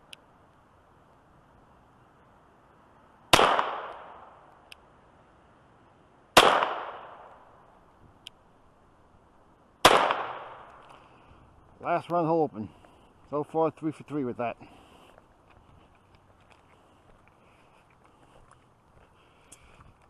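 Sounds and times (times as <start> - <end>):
pistol shots with echo: 3.3 - 4.4, 6.4 - 7.3, 9.8 - 10.7.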